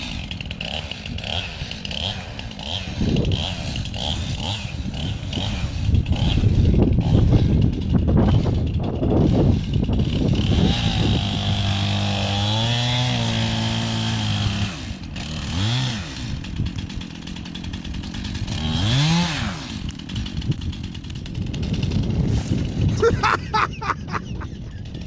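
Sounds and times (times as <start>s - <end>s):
chainsaw revving: 0.0s - 25.0s.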